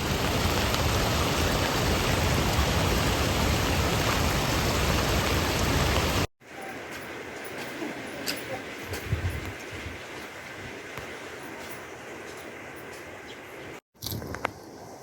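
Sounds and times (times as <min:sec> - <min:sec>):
rushing water: 0:00.0 - 0:06.3.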